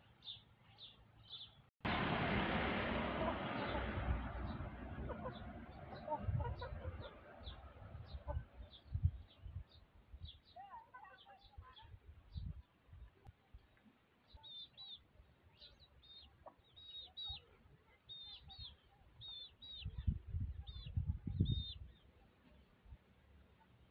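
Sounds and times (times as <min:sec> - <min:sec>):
low rumbling thumps: 0:01.9 - 0:09.2
high bird chirps: 0:18.1 - 0:22.0.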